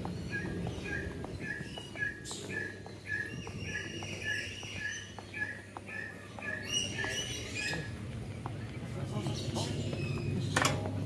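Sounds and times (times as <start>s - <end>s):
higher bird calls: 0.2s - 8.0s.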